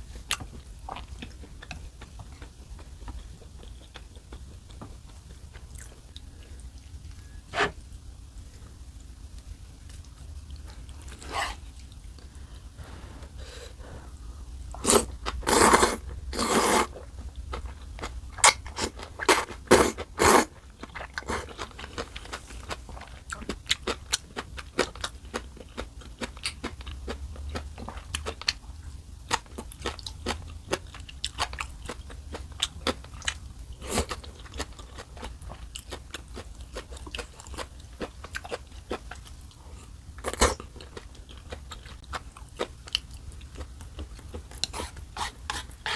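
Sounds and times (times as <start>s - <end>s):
crunchy chewing: 14.7s - 28.6s
loud bites or slurps: 14.8s - 16.9s, 18.8s - 20.5s.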